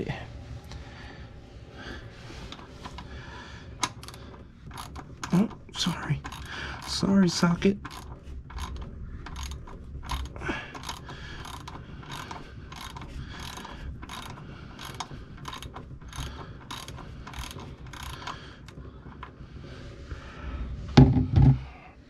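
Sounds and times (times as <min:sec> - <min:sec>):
hand ratchet clicking: 0:03.8 - 0:19.3.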